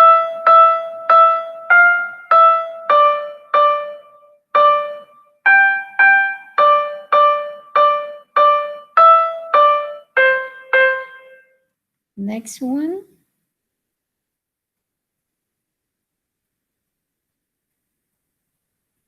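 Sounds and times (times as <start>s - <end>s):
piano-like keyboard melody: 0.0s - 11.6s.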